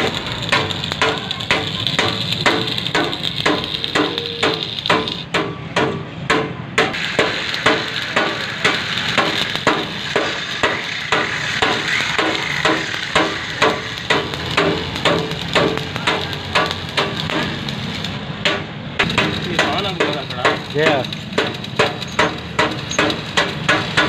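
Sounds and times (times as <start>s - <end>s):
hammer striking metal: 0.0s - 24.0s.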